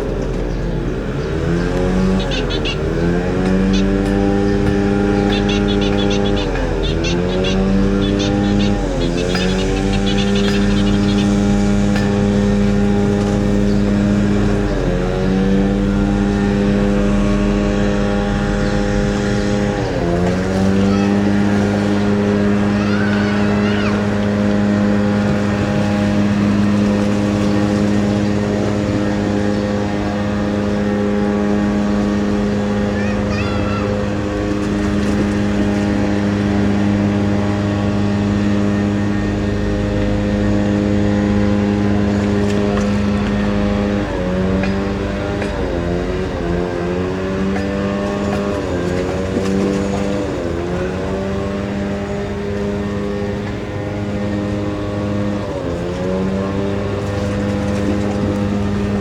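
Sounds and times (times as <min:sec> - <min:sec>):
ferry engine droning hum: 0:00.0 - 0:59.0.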